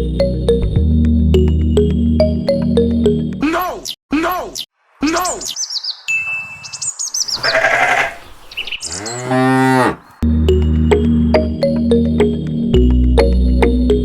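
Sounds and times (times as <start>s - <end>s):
keyboard background music: 0.0s - 3.4s, 9.4s - 14.0s
cattle mooing: 7.4s - 10.1s.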